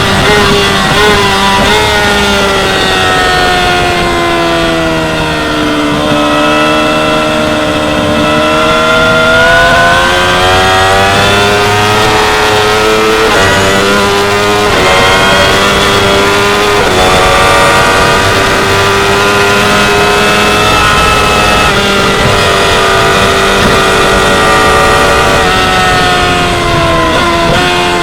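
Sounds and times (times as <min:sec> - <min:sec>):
motorcycle engine at high revs: 0:00.0 - 0:28.0.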